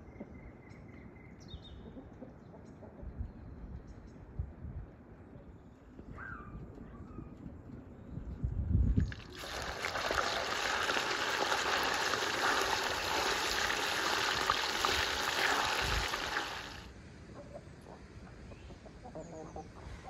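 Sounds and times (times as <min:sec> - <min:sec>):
chicken sizzling in hot oil: 0:09.0 - 0:16.9.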